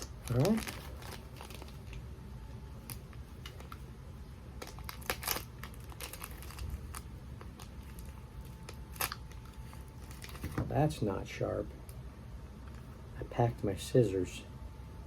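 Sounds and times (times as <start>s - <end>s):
plastic wrapper crinkling: 0.0s - 2.1s, 2.8s - 3.9s, 4.6s - 10.6s.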